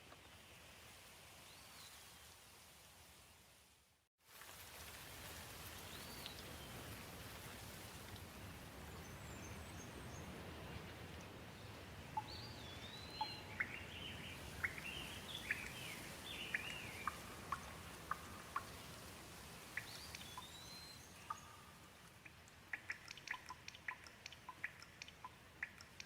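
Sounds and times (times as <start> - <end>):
gentle rain falling: 0.0 - 26.0
bird calling: 12.2 - 18.8
large drops dripping: 16.5 - 20.6, 21.2 - 26.0.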